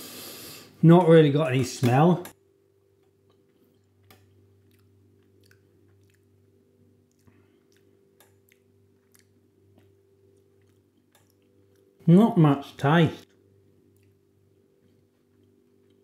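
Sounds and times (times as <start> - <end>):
faint electrical hum: 0.0 - 16.0
chewing mouth clicks: 3.3 - 12.0, 13.9 - 14.2.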